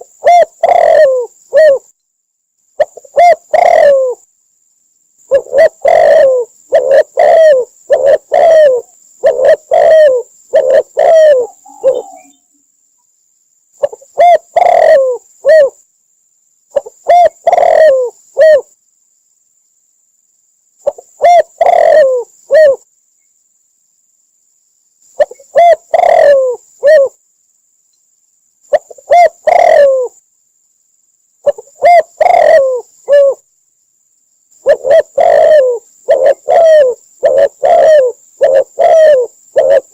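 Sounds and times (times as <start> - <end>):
dove cooing: 0.0 - 1.9, 2.8 - 4.2, 5.3 - 12.5, 13.8 - 15.8, 16.7 - 18.7, 20.8 - 22.9, 25.2 - 27.2, 28.7 - 30.2, 31.4 - 33.4, 34.6 - 39.9.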